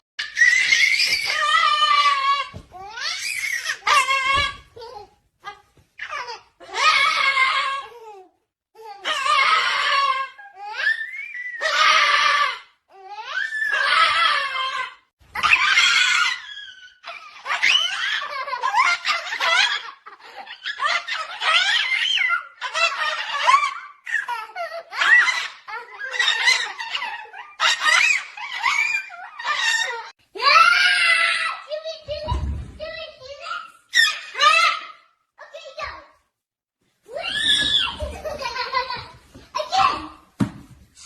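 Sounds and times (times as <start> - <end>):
high-pitched laughter: 13.6 - 30.1, 37.2 - 40.0.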